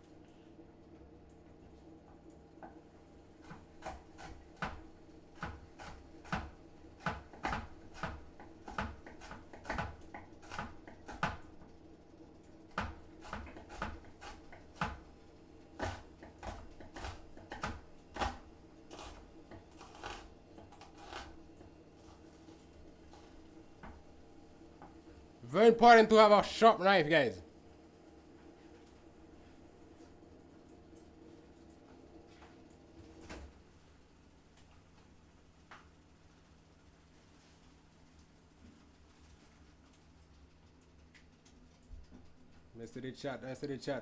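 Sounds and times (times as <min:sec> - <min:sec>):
knife chopping on cutting board: 0:03.4 - 0:04.8, 0:05.4 - 0:11.5, 0:12.8 - 0:15.1, 0:15.8 - 0:21.4.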